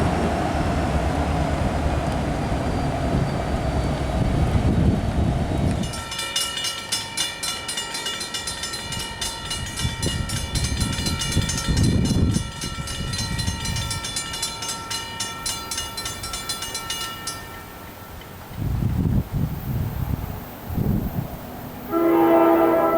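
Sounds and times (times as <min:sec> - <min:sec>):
railroad crossing bell ringing: 0:05.8 - 0:18.2, 0:21.8 - 0:22.9.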